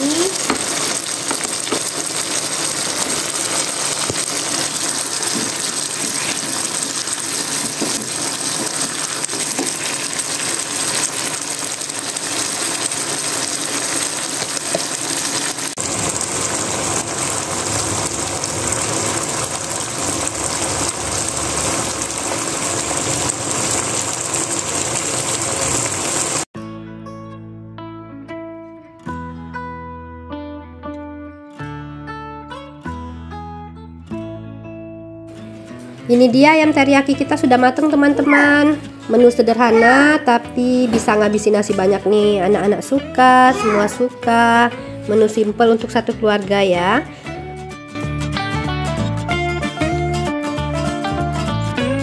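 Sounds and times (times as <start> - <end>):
chicken sizzling in a frying pan: 0.0 - 26.5, 36.4 - 44.1.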